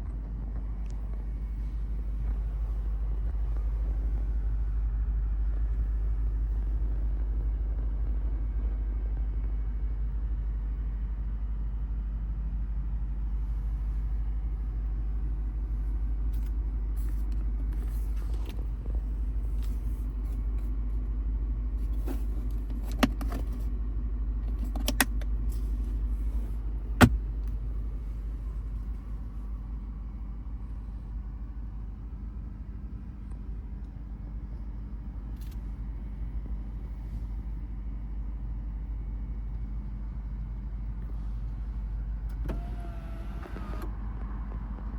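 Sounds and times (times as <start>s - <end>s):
car engine low rumble: 0.0s - 44.9s
sharp clicks and knocks: 27.0s - 27.6s.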